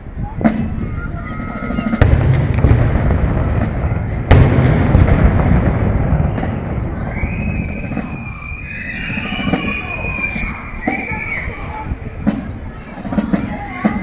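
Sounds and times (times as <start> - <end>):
gun shot with rolling rumble: 2.0 - 8.3.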